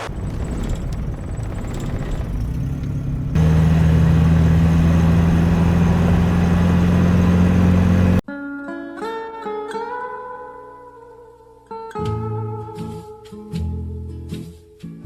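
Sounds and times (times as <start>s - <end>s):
car engine droning: 0.0s - 8.2s.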